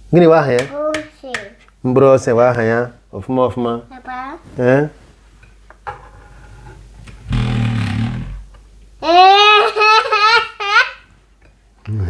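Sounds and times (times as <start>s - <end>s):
toddler babbling: 9.0s - 11.0s.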